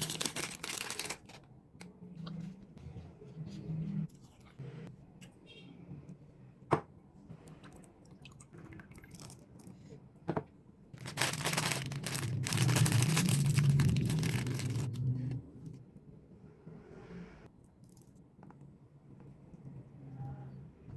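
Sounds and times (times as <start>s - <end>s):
plastic wrapper crinkling: 0.0s - 1.5s, 11.0s - 15.0s.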